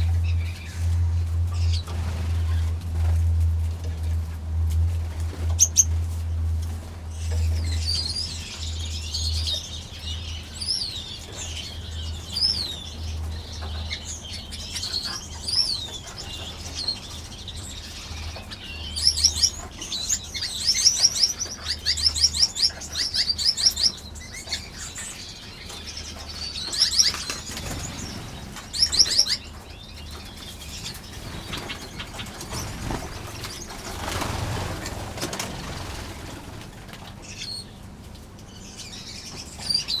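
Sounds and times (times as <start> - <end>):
finches chirping and trilling: 0.0 - 3.2, 5.1 - 37.8, 38.4 - 40.0
wings fluttering: 0.0 - 9.6, 25.7 - 38.1
steady low hum: 0.0 - 40.0.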